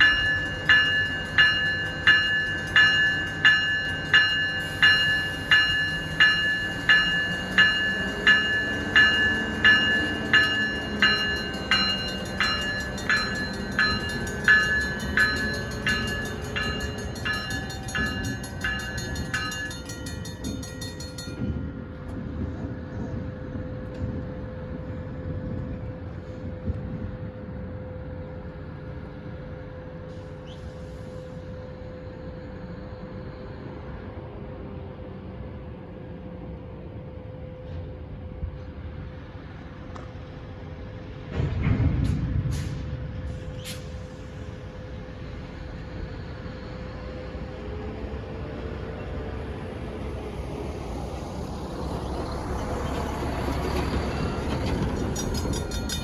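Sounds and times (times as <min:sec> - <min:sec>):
railroad bell ringing: 0:00.0 - 0:22.4, 0:52.5 - 0:56.0
train rumbling: 0:00.0 - 0:56.0.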